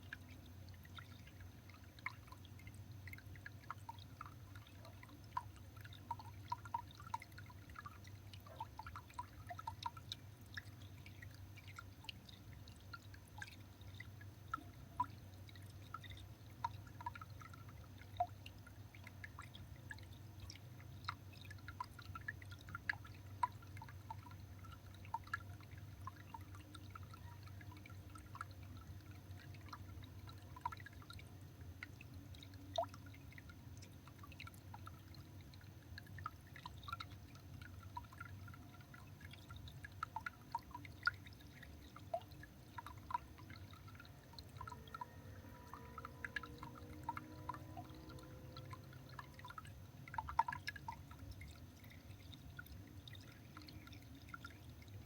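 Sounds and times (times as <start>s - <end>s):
low hum: 41.8s - 55.0s.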